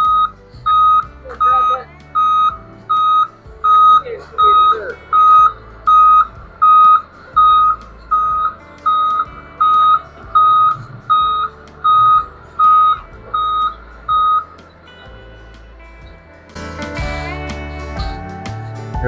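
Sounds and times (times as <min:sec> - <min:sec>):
truck engine running: 0:00.0 - 0:19.0
backup alarm beeping: 0:00.1 - 0:14.5.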